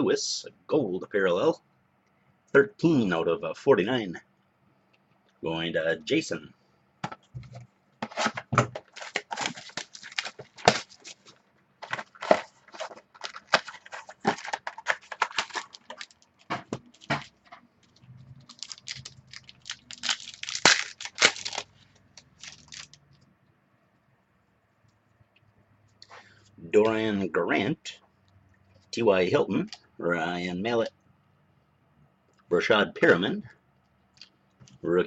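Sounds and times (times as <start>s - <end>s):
wrapper tearing and crinkling: 8.1s - 23.0s.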